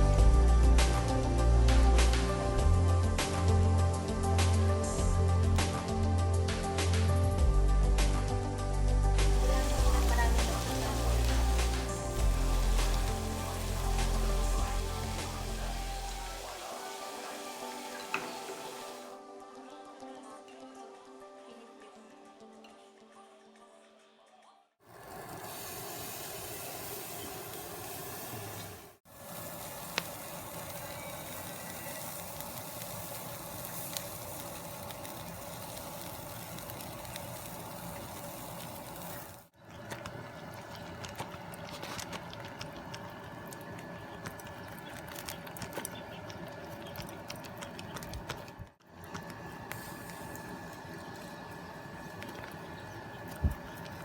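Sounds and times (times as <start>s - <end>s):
chicken sizzling: 9.1s - 19.2s, 24.8s - 54.0s.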